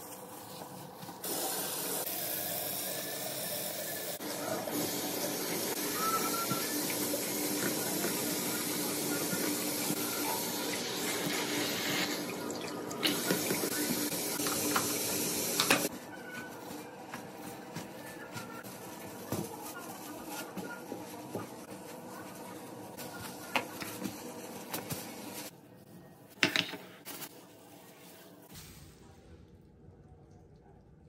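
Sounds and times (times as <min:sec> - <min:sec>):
scrubbing faucet with brush: 0:04.2 - 0:15.9.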